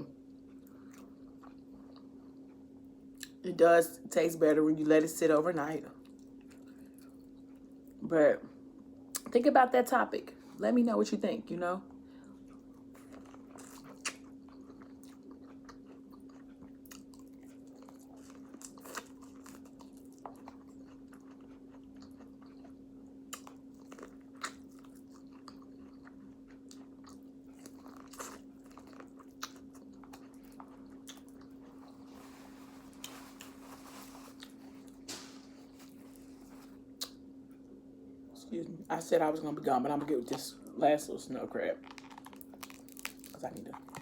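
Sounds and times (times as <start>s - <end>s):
faint hum: 0.0s - 44.0s
crunchy bites and chewing: 12.5s - 36.2s, 41.8s - 44.0s.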